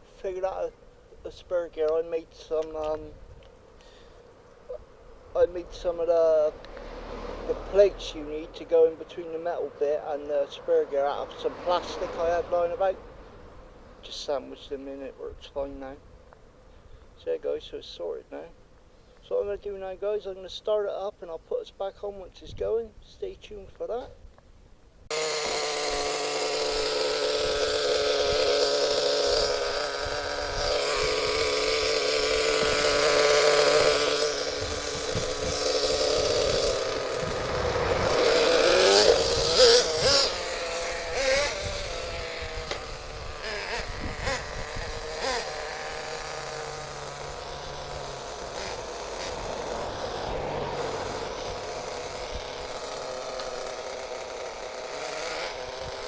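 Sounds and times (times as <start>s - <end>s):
model engine buzzing and revving: 4.7s - 14.8s, 25.1s - 56.0s.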